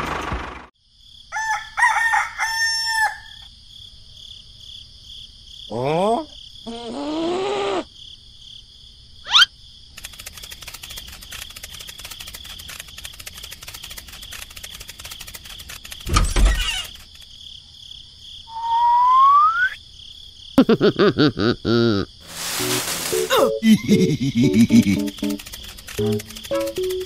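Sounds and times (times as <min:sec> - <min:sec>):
crackly insect-like buzz: 0:09.6 - 0:18.5, 0:22.1 - 0:27.0
cartoon rising whistle: 0:18.5 - 0:19.8
rapid pitched chirps: 0:22.6 - 0:27.0.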